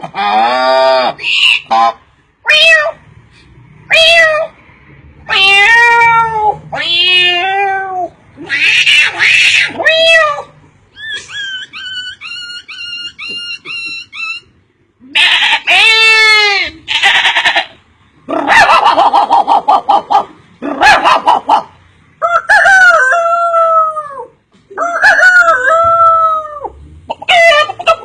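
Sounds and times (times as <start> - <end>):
cat meowing: 2.4 - 3.0, 3.9 - 4.5, 5.2 - 10.6, 15.0 - 17.8.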